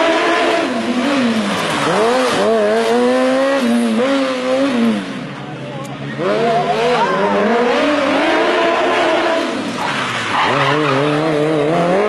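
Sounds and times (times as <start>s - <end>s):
motorcycle engine revving high: 0.0s - 12.0s.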